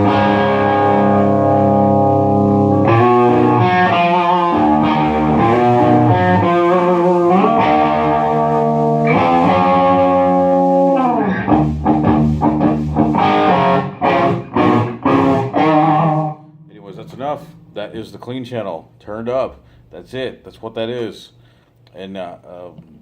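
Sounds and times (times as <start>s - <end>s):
overdriven electric guitar: 0.0s - 17.9s.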